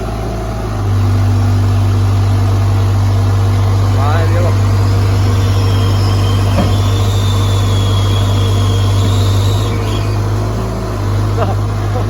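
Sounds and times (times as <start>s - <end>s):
diesel engine running: 0.0s - 12.0s
faint high whine: 3.0s - 10.3s.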